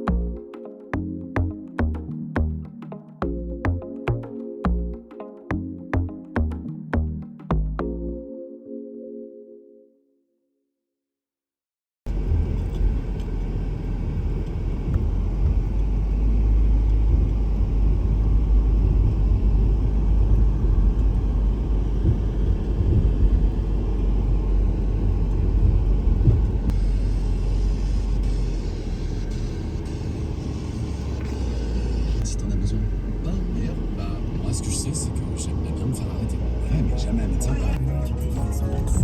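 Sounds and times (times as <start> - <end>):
car driving rumble: 12.1 - 39.0.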